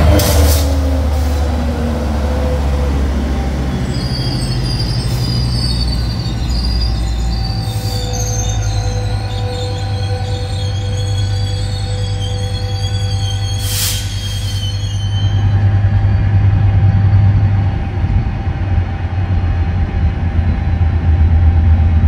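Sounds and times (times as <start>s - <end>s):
diesel locomotive rumble: 0.0s - 22.0s
high wheel squeal: 3.2s - 17.4s.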